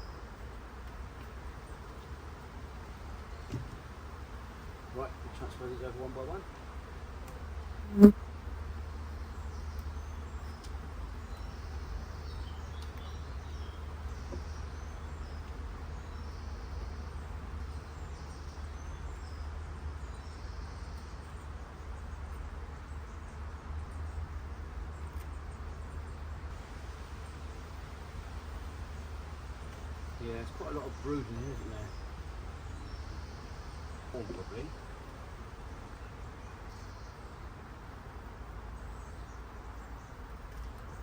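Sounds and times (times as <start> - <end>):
honeybees buzzing: 0.0 - 18.0, 26.5 - 41.0.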